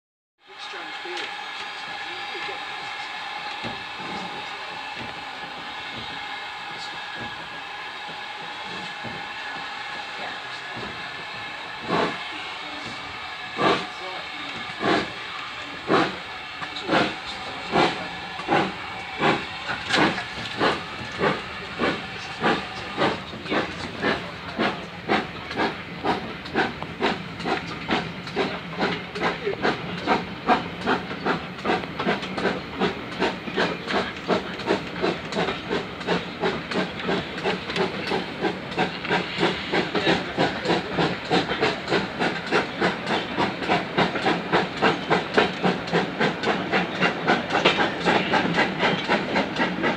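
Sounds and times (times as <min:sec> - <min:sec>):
steam hissing: 0:00.5 - 0:49.9
steam locomotive exhaust chuffs: 0:00.5 - 0:49.9.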